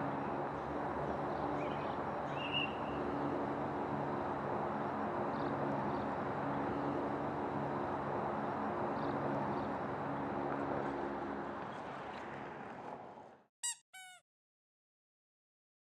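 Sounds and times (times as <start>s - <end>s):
low engine-like hum: 0.0s - 13.4s
outdoor rumble and hiss: 0.0s - 13.4s
short high-pitched falling calls: 13.6s - 14.2s.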